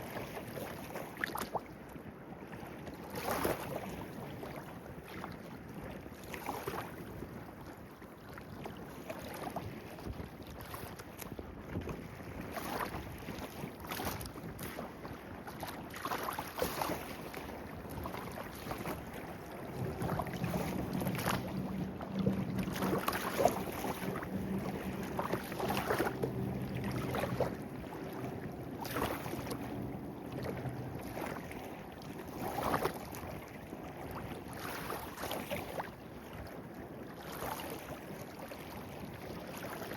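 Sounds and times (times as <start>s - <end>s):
steady low hum: 19.1s - 32.5s.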